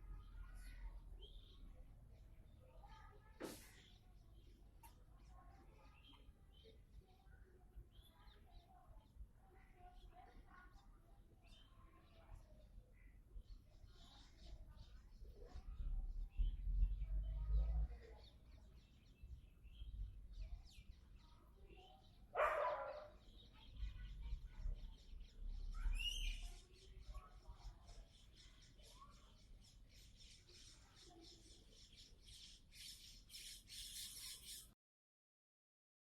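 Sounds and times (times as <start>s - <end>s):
faint bird calls: 24.9s - 34.7s.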